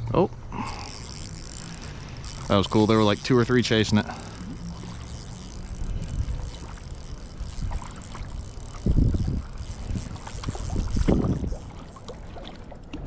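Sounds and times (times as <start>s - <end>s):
wind buffeting the microphone: 5.6s - 11.9s.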